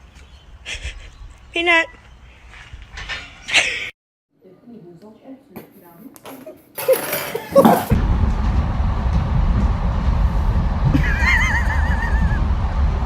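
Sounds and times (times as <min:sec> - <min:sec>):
loud low rumble: 0:07.9 - 0:13.0.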